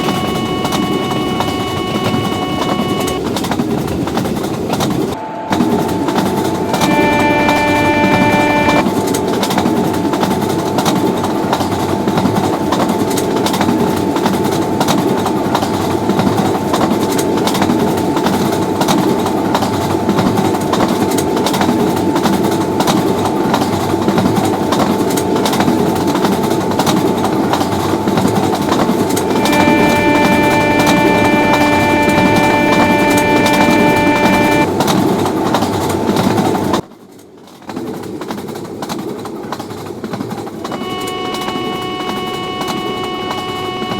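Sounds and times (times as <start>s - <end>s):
train passing at speed: 3.2s - 36.8s.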